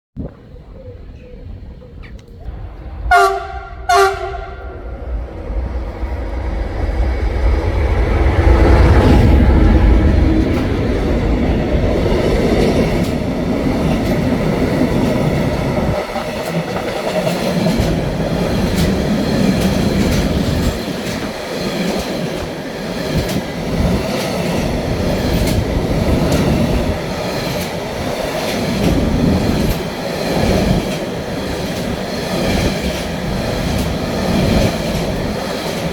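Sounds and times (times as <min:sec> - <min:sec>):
train passing rumble: 0:00.2 - 0:35.9
train horn blasts: 0:03.0 - 0:05.2
wheels clicking over rail joints: 0:07.0 - 0:35.9.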